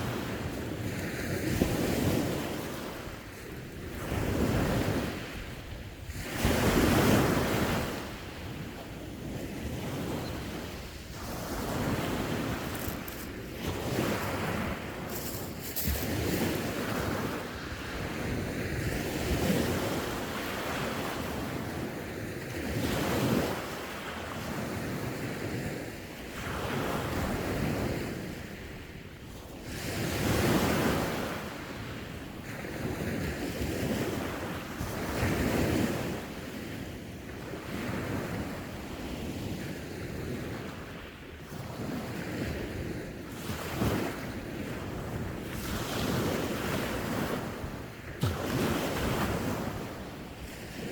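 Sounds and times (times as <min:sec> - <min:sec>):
wind buffeting microphone: 0:00.0 - 0:23.6
sea waves breaking on shore: 0:00.0 - 0:50.9.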